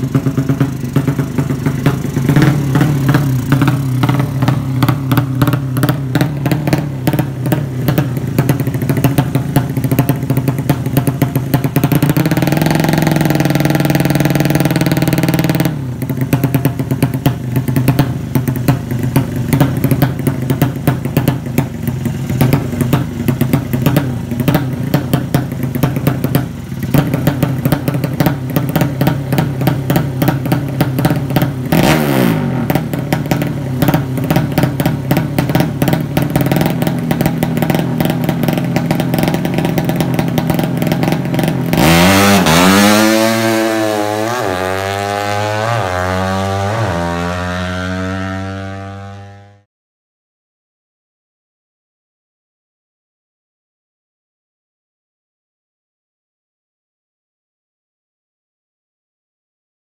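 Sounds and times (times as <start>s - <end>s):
motorcycle engine revving: 0.0s - 49.7s.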